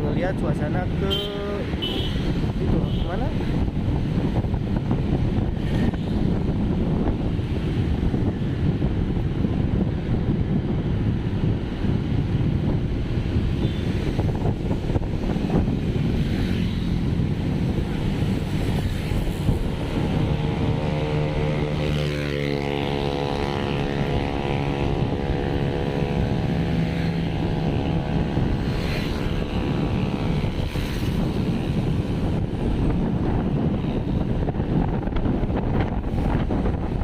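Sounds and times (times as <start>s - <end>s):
vehicle rumble: 0.0s - 37.0s
wind buffeting microphone: 0.0s - 37.0s
passing engine: 11.0s - 37.0s.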